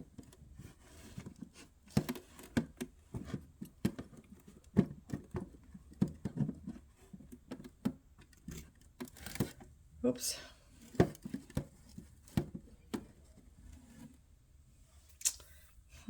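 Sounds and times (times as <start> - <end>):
wooden knocks and taps: 11.0 - 13.2.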